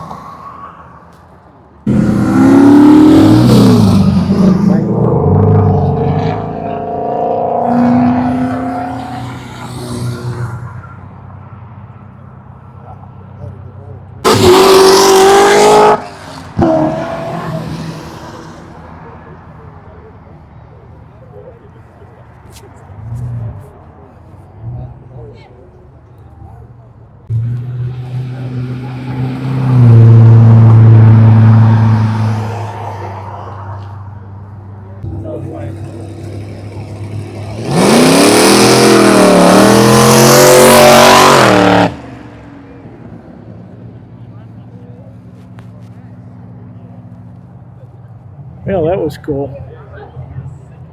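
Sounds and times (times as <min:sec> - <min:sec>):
car driving past: 0:01.8 - 0:11.3, 0:27.3 - 0:47.2
car engine running: 0:34.2 - 0:49.0.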